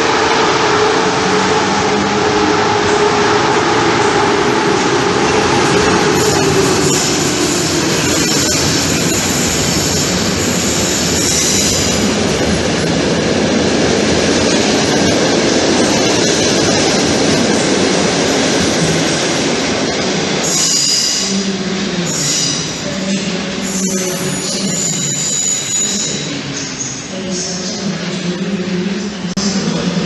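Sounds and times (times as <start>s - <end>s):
train rumbling on rails: 0.0s - 30.0s
train wheel squeals: 23.6s - 27.0s.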